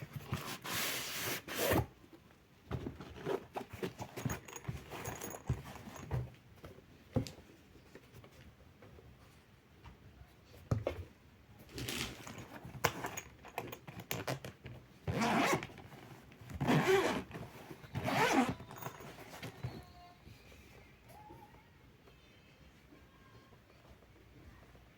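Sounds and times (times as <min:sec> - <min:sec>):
handling clicks and knocks: 0:02.2 - 0:08.4, 0:11.7 - 0:19.9.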